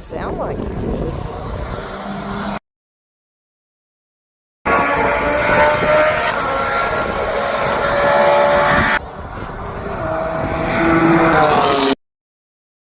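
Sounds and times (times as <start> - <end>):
race car engine: 0.3 - 2.6, 4.7 - 12.0
car passing by: 4.7 - 12.0.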